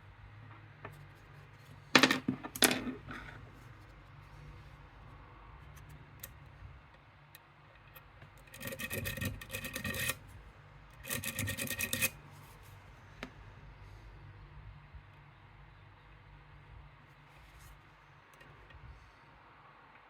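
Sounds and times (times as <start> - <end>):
lock pick scraping in a lock: 7.8 - 10.2, 11.0 - 12.2.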